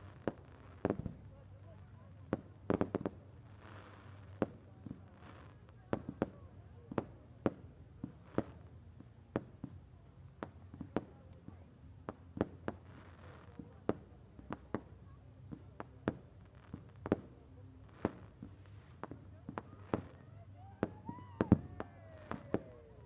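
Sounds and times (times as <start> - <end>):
fireworks bangs and cracks: 0.1 - 1.2, 2.2 - 8.6, 15.5 - 23.0.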